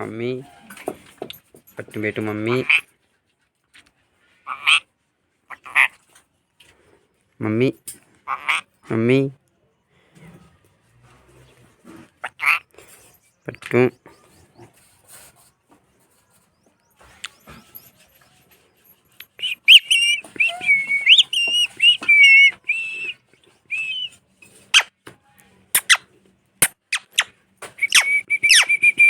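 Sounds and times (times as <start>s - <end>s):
parrot whistling and calling: 19.3s - 24.9s, 25.8s - 26.0s, 26.7s - 29.0s.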